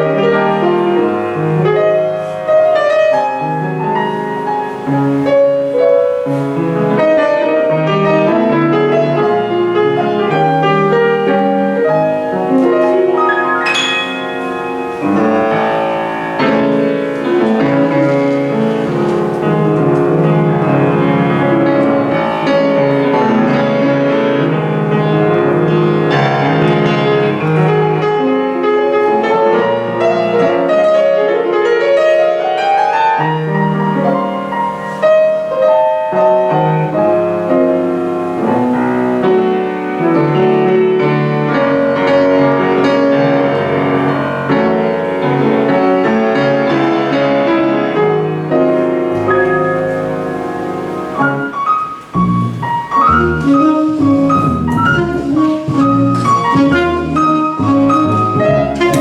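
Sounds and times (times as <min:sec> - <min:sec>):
jazz piano: 0:00.0 - 0:59.0
electric double bass: 0:36.6 - 0:59.0.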